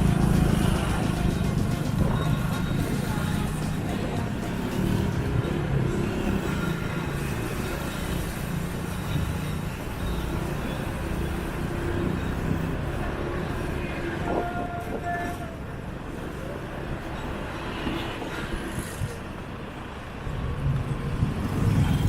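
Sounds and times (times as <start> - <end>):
motorbike engine running: 0.0 - 7.6
wind and road noise: 0.0 - 22.0.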